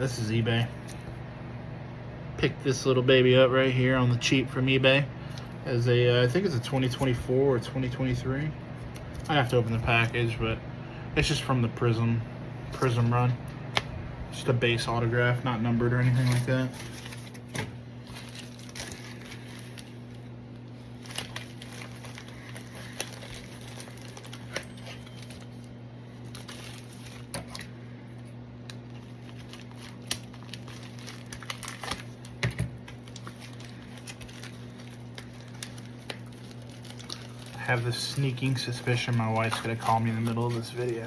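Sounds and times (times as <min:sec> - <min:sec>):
steady low hum: 0:00.0 - 0:41.0
packaging crinkling: 0:15.8 - 0:41.0.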